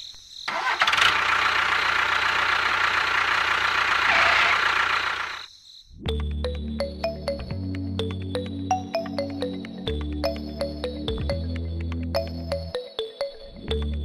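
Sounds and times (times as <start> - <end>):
small engine running roughly: 0.5 - 5.5
music: 6.0 - 14.0.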